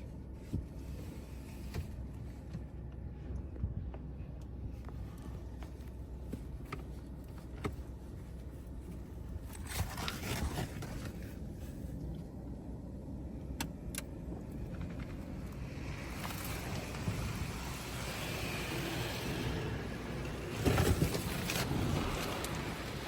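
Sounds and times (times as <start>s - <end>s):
car wash low rumble: 0.0s - 23.0s
water spray hissing on car: 16.1s - 20.6s.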